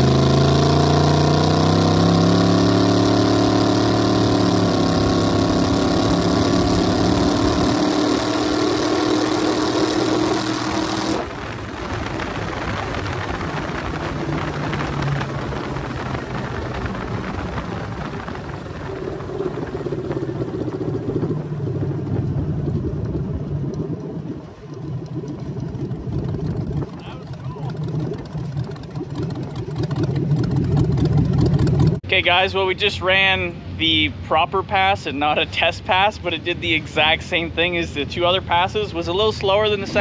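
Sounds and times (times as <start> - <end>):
racing car engine running: 0.0 - 40.0.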